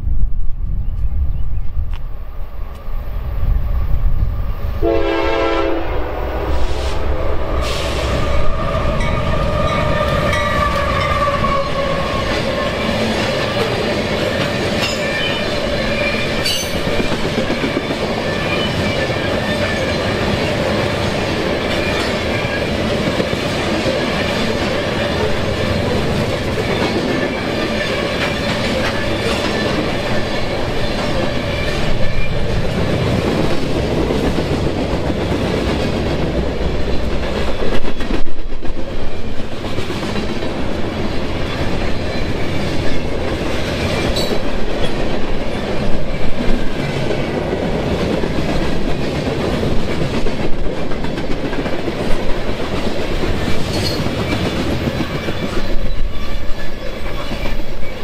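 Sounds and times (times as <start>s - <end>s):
train wheels rumbling and clattering: 0.0s - 58.0s
train horn blast: 4.8s - 12.3s.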